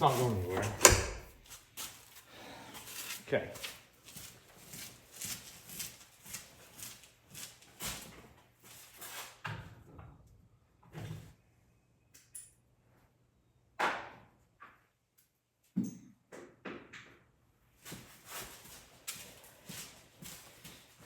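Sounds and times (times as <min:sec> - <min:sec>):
tools knocking and thudding: 0:00.5 - 0:01.4.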